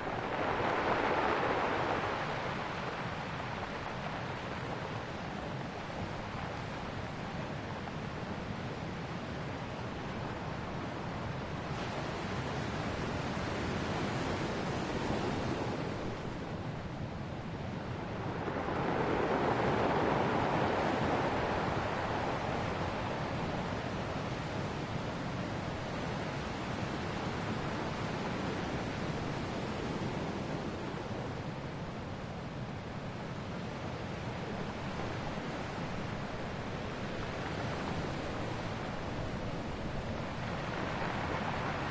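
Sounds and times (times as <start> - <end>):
ocean waves breaking on shore: 0.0 - 41.9.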